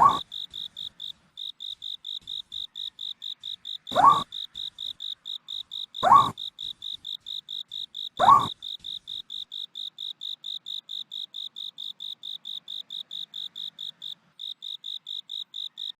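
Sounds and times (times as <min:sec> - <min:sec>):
owl call: 0:00.0 - 0:00.3, 0:02.7 - 0:04.6, 0:06.0 - 0:06.4, 0:08.2 - 0:08.6
cricket chirping: 0:00.0 - 0:16.0.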